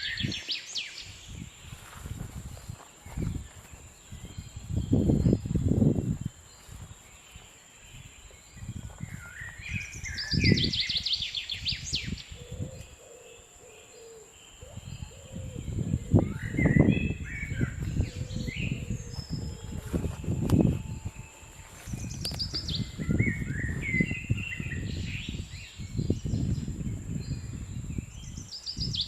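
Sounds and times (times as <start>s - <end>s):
small birds chirping: 2.6s - 29.0s
thin high whine: 19.4s - 22.6s.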